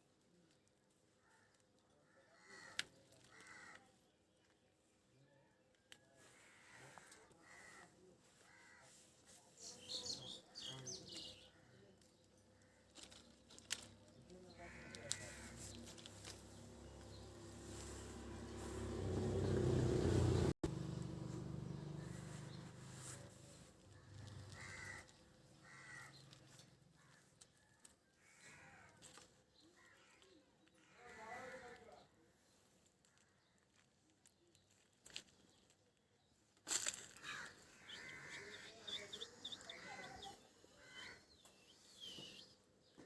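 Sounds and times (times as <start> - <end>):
bird calls: 37.0 - 43.0.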